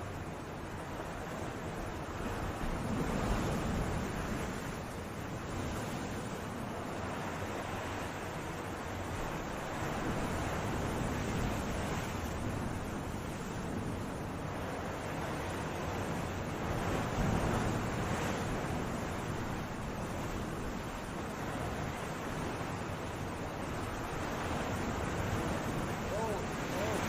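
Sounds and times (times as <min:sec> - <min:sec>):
sea waves breaking: 0:00.0 - 0:27.0.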